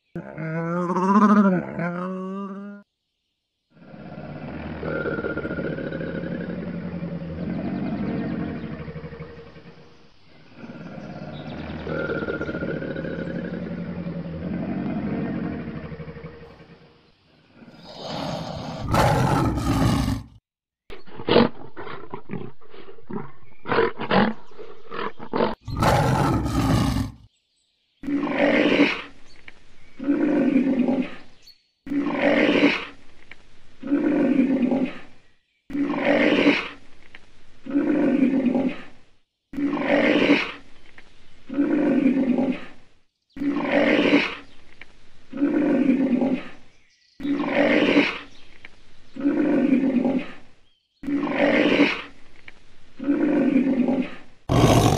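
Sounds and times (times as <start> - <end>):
deep animal call: 0.0 - 2.9, 17.5 - 27.2, 53.0 - 54.9
harsh animal call blasts: 17.7 - 20.4, 25.7 - 27.2, 54.5 - 54.9.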